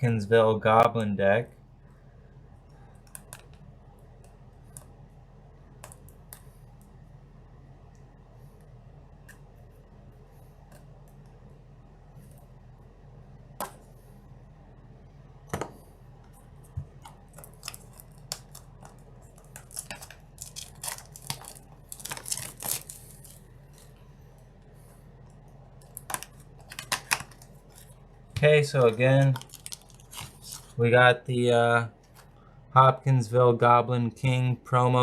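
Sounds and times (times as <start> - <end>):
wrapping crackling and tearing: 17.0 - 24.0, 25.8 - 30.8.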